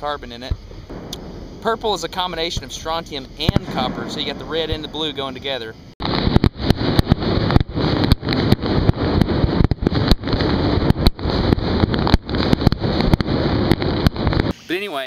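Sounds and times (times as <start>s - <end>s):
fireworks bursting: 0.3s - 14.5s.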